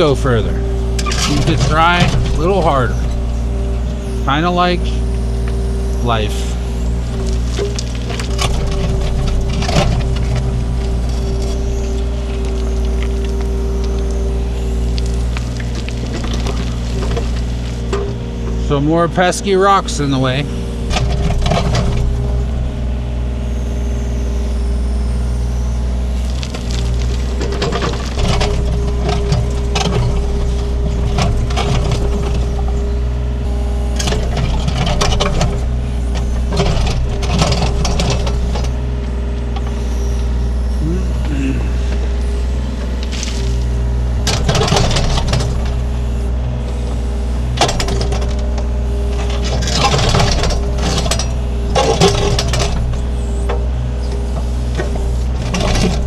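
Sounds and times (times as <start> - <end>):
bucket scraping against rocks: 0.0 - 18.8, 26.2 - 46.0
excavator diesel engine running: 0.0 - 56.0.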